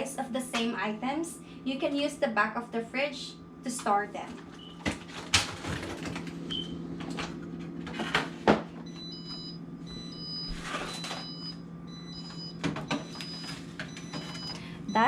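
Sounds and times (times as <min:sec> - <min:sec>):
fridge hum: 0:00.0 - 0:15.0
fridge alarm beeping: 0:04.5 - 0:04.9, 0:06.4 - 0:06.9, 0:08.8 - 0:15.0.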